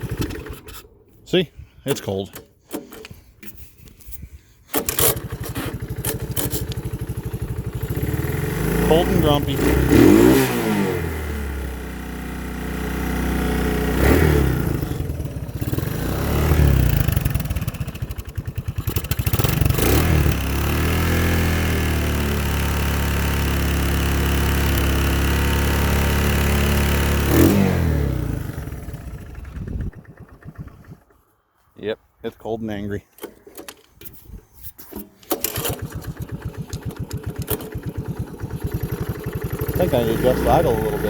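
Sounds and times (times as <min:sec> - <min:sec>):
rough engine revving: 0:04.8 - 0:31.2, 0:35.4 - 0:41.0.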